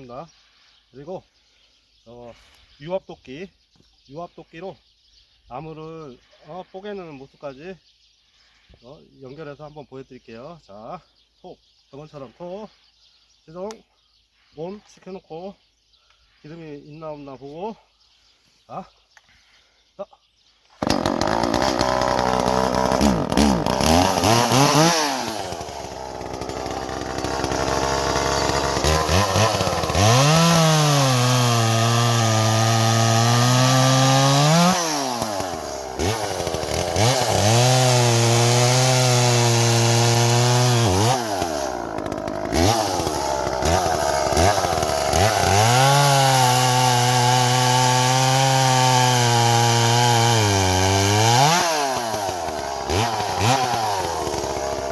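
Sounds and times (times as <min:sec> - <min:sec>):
chainsaw revving and idling: 0:20.7 - 0:54.9.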